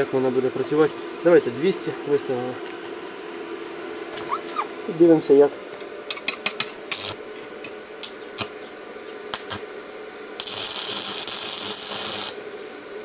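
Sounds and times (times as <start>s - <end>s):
welding arc hissing: 6.9s - 7.2s, 9.3s - 9.7s, 10.4s - 12.6s
welding electrode scratching steel: 6.9s - 7.2s, 9.3s - 9.6s, 10.4s - 12.4s.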